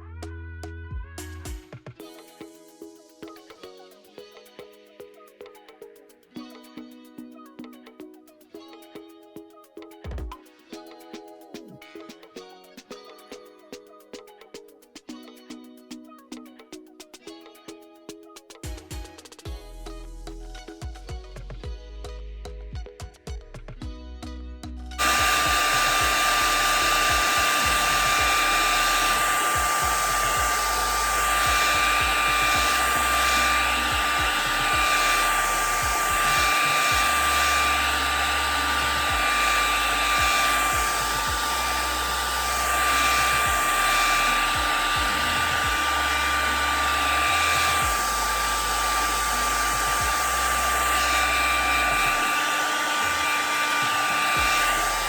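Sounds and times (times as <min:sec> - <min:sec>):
blow dryer whining: 0:25.0 - 0:55.0.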